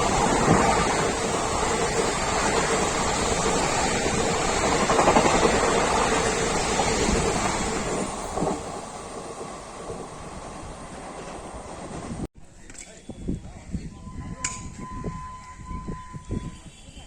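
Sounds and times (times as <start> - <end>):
train passing at speed: 0.0 - 12.3.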